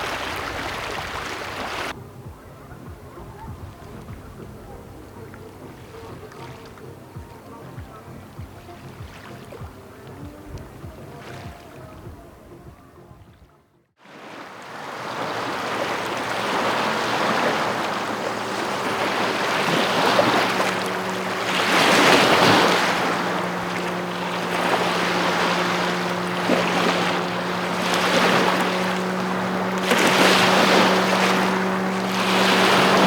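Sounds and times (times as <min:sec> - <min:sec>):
waves washing onto shore: 0:00.0 - 0:12.1, 0:14.0 - 0:33.0
wind noise on microphone: 0:00.0 - 0:13.7
low steady hum: 0:01.9 - 0:13.9, 0:15.3 - 0:33.0.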